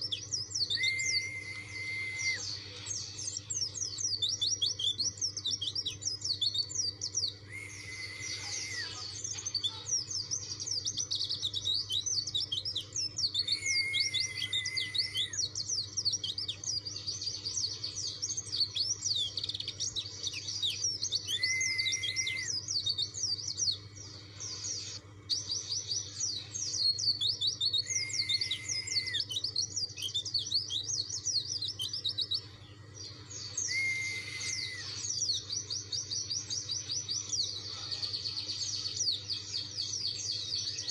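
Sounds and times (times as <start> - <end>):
bird twittering song: 0.0 - 40.9
long whistled bird note: 0.7 - 2.7, 7.4 - 9.2, 13.4 - 15.4, 21.2 - 22.6, 27.8 - 29.3, 33.6 - 35.3.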